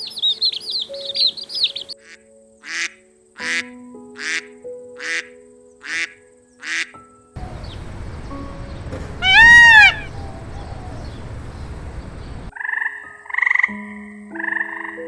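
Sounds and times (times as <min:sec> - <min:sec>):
high rising and falling animal call: 0:07.4 - 0:12.5
short pulsed animal calls: 0:07.4 - 0:12.5.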